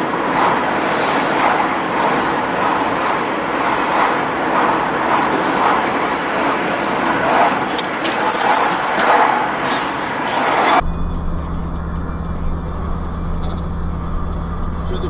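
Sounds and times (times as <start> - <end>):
vehicle road and engine noise: 0.0 - 15.0
short high squeal: 7.9 - 9.0.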